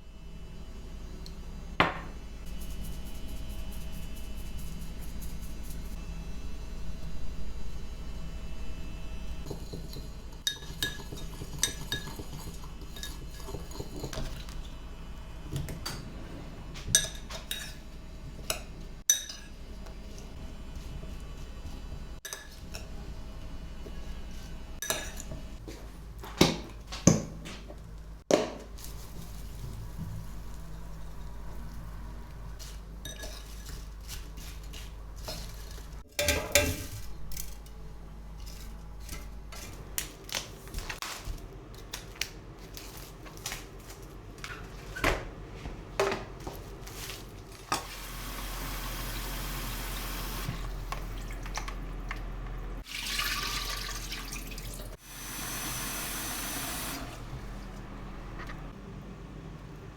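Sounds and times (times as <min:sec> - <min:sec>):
dishes and cutlery clinking: 0:09.4 - 0:14.6, 0:18.5 - 0:19.6, 0:33.0 - 0:37.7.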